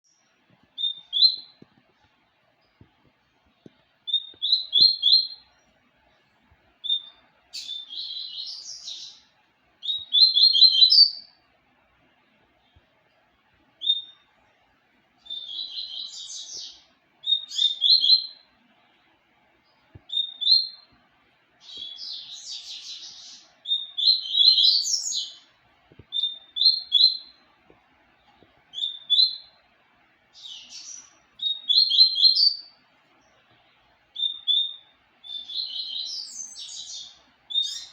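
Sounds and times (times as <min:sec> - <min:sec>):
bird twittering song: 0:00.0 - 0:01.7, 0:03.6 - 0:05.8, 0:06.8 - 0:11.4, 0:13.8 - 0:14.3, 0:15.2 - 0:18.6, 0:19.6 - 0:21.0, 0:21.6 - 0:27.4, 0:28.2 - 0:29.6, 0:30.3 - 0:37.9.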